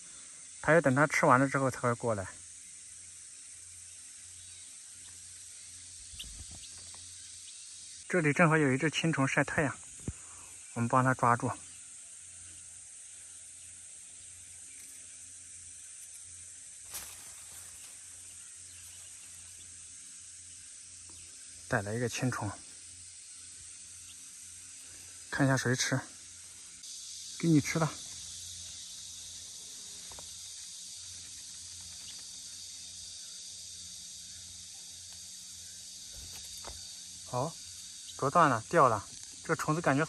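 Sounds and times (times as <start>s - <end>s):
insects hissing in grass: 0.0s - 40.0s
faint ticks: 34.9s - 35.4s.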